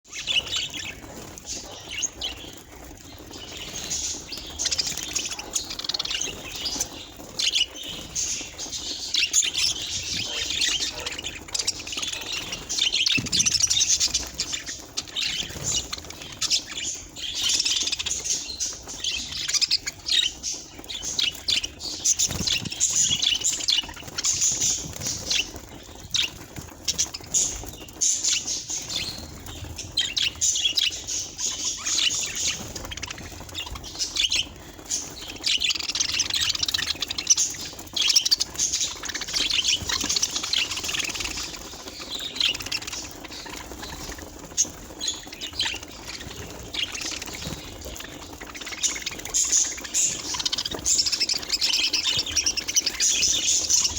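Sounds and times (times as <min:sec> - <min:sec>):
budgerigars chirping and chattering: 0:00.1 - 0:53.9.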